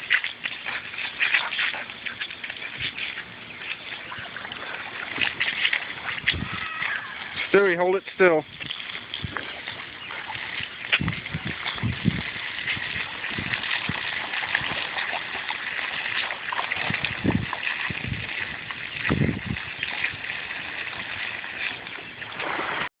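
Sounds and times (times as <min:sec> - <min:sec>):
hose spraying water: 0:00.0 - 0:22.9.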